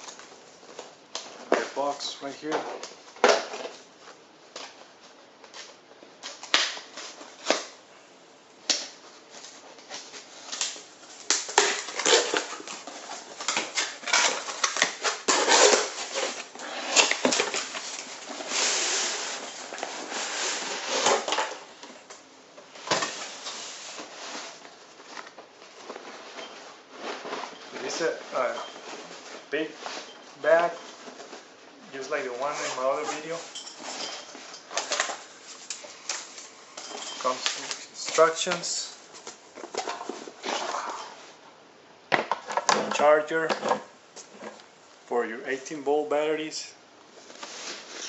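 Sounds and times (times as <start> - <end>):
cardboard and packaging rustling: 8.8 - 41.5, 47.1 - 48.0.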